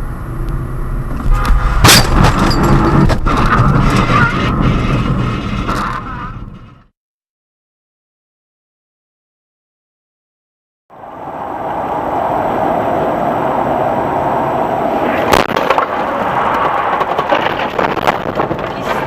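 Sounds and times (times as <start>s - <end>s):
road and engine noise inside car: 0.0s - 6.4s, 10.9s - 17.4s
collision crash bang: 1.3s - 4.1s.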